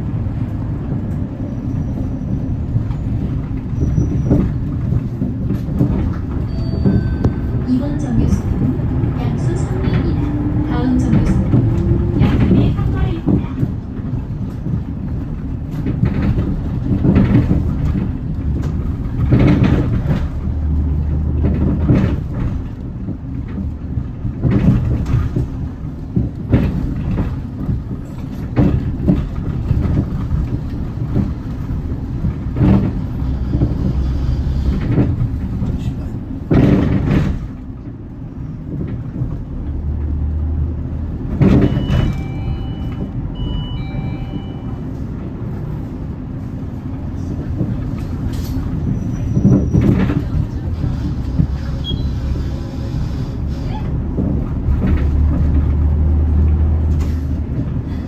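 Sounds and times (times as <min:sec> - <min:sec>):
knocks and rattles over road: 0:00.0 - 0:43.5, 0:44.3 - 0:58.0
diesel bus engine rumble: 0:00.0 - 0:58.0
short electronic beeps: 0:41.7 - 0:44.8.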